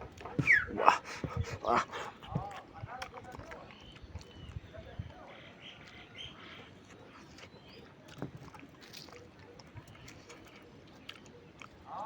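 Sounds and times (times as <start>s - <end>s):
food being chewed: 0.0s - 12.0s.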